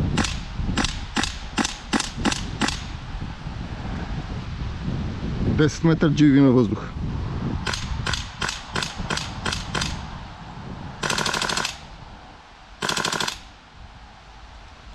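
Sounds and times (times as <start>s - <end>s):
airsoft rifle firing: 7.7s - 10.0s, 11.0s - 11.9s, 12.8s - 13.5s.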